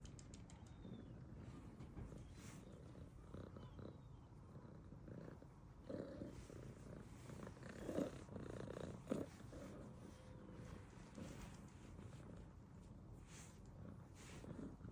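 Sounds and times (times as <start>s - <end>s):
cat purring: 0.7s - 14.9s.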